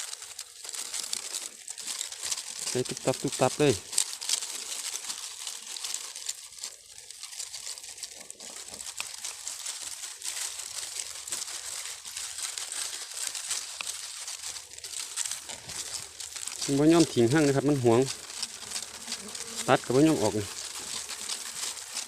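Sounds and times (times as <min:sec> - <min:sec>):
foliage and twigs rustling: 0:00.0 - 0:22.0.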